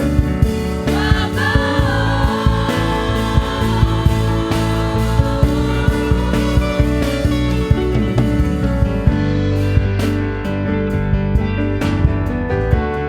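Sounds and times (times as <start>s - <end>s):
bass: 0.0s - 13.0s
drum beats: 0.0s - 13.0s
keyboard chords: 0.0s - 13.0s
person singing: 0.8s - 8.2s.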